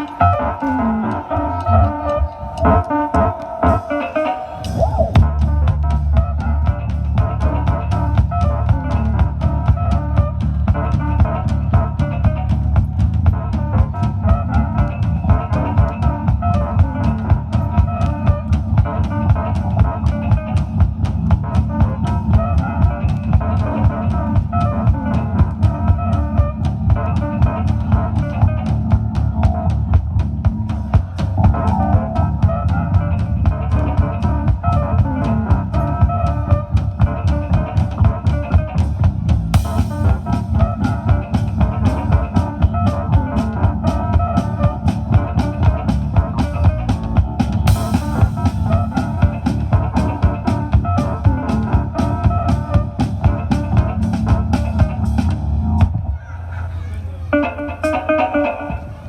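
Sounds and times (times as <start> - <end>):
drum kit beat: 0.0 - 56.1
guitar: 0.0 - 56.2, 57.2 - 59.0
bass: 4.6 - 57.9.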